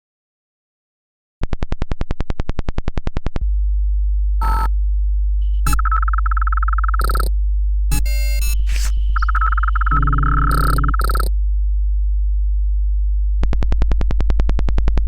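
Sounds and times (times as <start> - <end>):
deep electronic drone: 4.3 - 11.9
short electronic beeps: 4.4 - 4.7, 5.5 - 7.3, 7.9 - 11.3
rapid pulsing electronic buzz: 5.4 - 7.3, 7.9 - 11.3.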